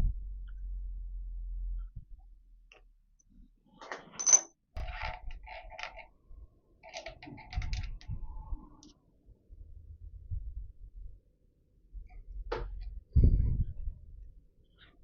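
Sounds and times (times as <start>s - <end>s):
small steel parts clinking and rattling: 4.0s - 6.1s, 6.8s - 8.1s.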